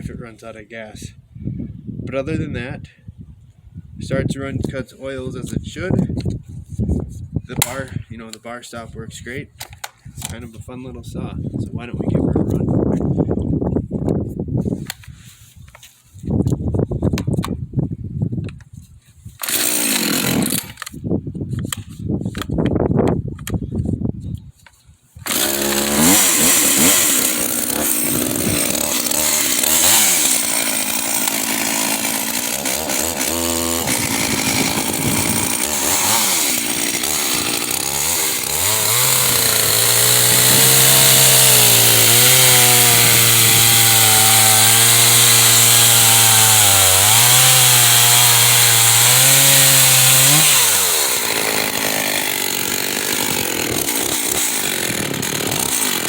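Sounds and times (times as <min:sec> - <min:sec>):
chainsaw revving: 0:19.4 - 0:20.9, 0:25.2 - 0:56.0.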